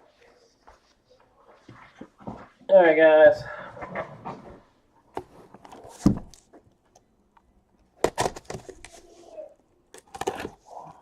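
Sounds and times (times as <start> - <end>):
cardboard boxes rustling: 4.0 - 6.7, 8.0 - 9.3.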